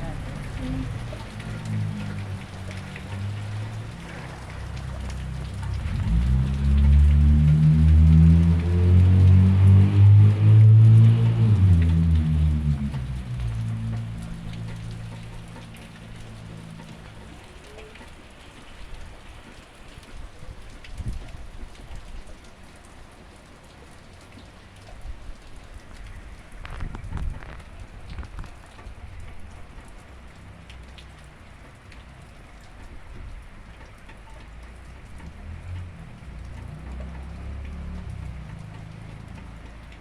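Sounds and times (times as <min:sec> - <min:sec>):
low rumble: 0:00.0 - 0:17.2
steady rain falling: 0:00.0 - 0:40.0.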